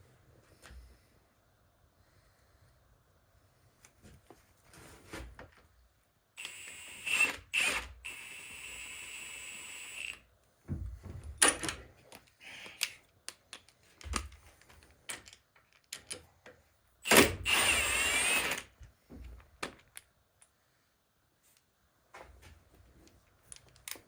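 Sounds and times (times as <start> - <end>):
metal parts clicking and knocking: 11.3 - 16.6, 23.2 - 24.0
power tool running: 17.1 - 18.6.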